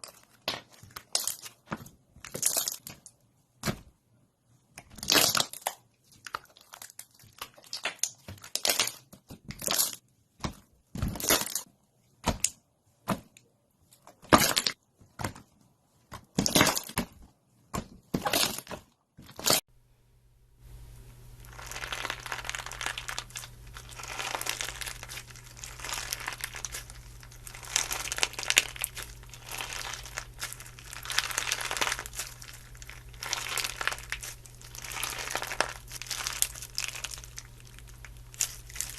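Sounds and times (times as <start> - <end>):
faint low hum: 19.7 - 38.9
slime crackling: 21.4 - 38.9.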